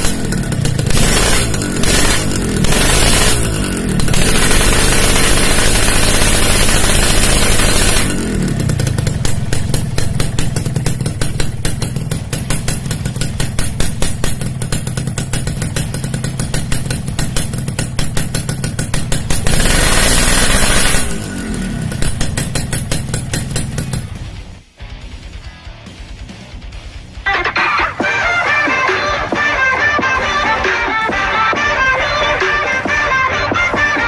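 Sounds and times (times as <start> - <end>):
motorcycle engine revving: 0.0 - 24.7.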